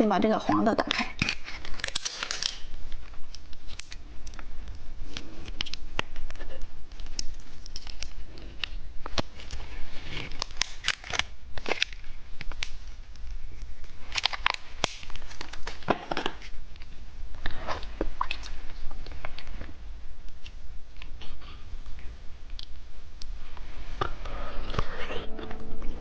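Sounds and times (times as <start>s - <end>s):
plastic packaging crinkling: 0.9s - 6.4s, 7.0s - 19.5s.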